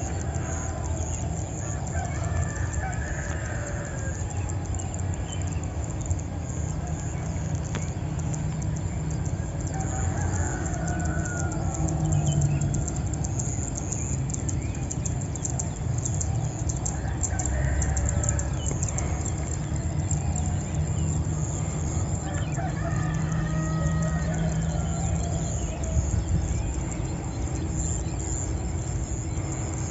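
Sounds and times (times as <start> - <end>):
rooster crowing: 0.0 - 4.9, 9.4 - 13.1, 16.8 - 19.8, 20.9 - 26.4
small birds chirping: 0.0 - 29.9
steady low rumble: 0.0 - 29.9.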